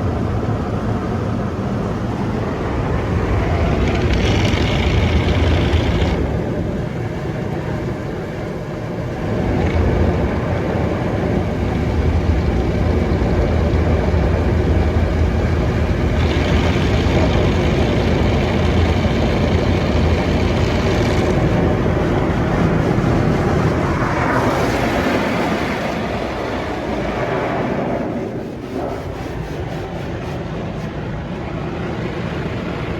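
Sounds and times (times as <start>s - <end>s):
car wash water and machinery: 0.0s - 32.9s.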